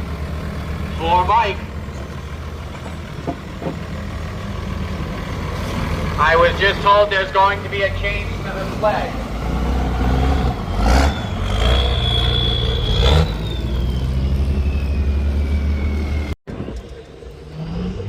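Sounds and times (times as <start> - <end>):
diesel truck engine droning: 0.0 - 18.0
high whistle sliding down: 10.9 - 17.0.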